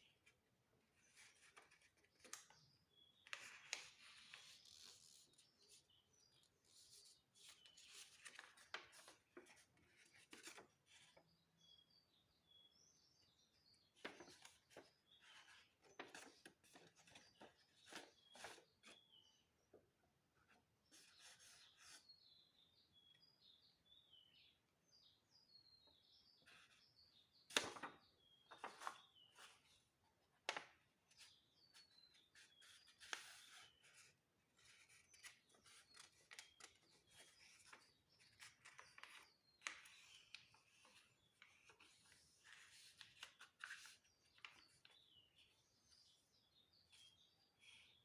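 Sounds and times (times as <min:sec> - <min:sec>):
small birds chirping: 0:00.0 - 0:48.0
paper folding and rustling: 0:03.3 - 0:05.8, 0:06.9 - 0:11.2, 0:13.9 - 0:19.0, 0:27.5 - 0:29.7, 0:30.5 - 0:45.0.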